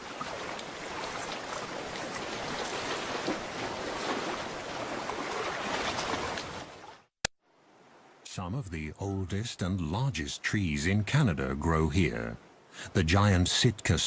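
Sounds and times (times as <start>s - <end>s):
seawater washing over rocks: 0.0s - 6.9s.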